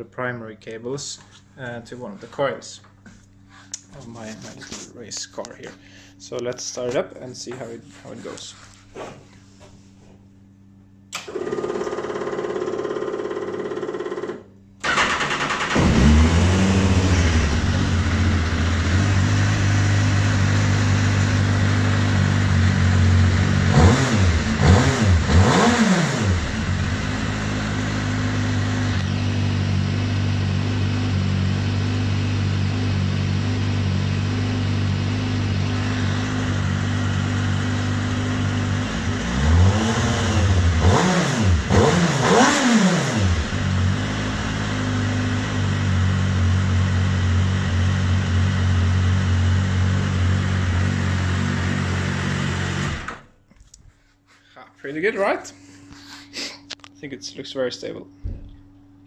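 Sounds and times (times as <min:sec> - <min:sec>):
engine revving in throttle blips: 0:14.8 - 0:53.2
race car engine idling: 0:15.8 - 0:23.7.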